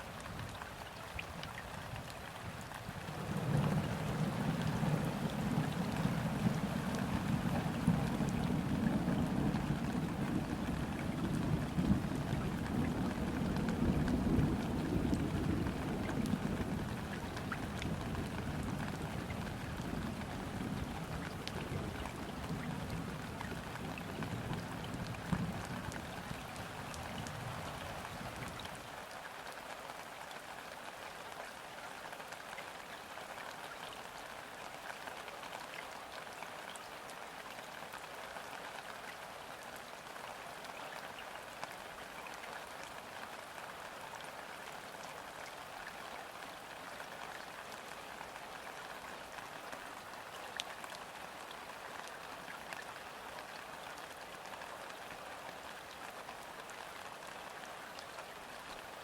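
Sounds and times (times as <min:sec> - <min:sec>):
rain falling on water: 0:00.0 - 0:59.0.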